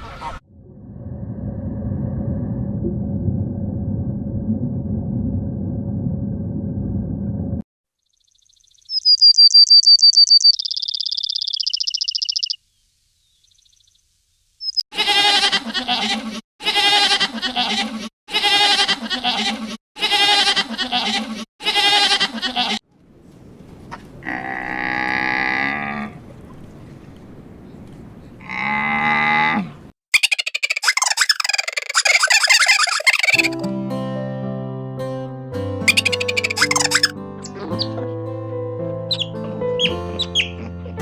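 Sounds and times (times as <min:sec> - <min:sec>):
loud wavering bleats: 0:15.0 - 0:22.8, 0:24.2 - 0:26.2, 0:28.4 - 0:29.8.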